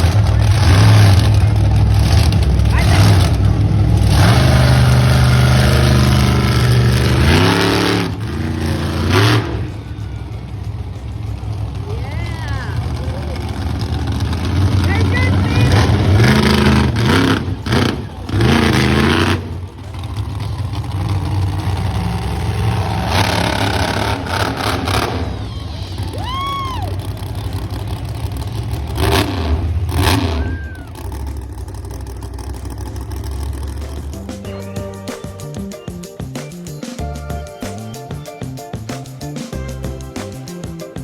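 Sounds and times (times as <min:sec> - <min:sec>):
monster truck engines revving: 0:00.0 - 0:41.0
rising and falling whoops: 0:25.3 - 0:27.3, 0:30.1 - 0:31.3.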